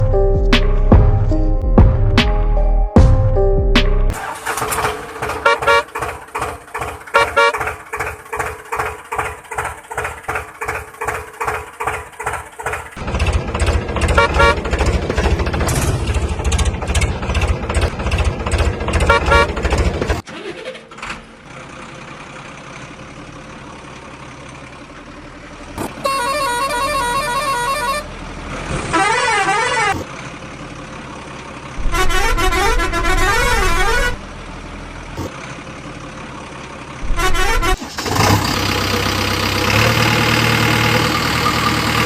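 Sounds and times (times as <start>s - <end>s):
toy electronic horn and siren: 7.2s - 7.6s, 26.0s - 28.1s.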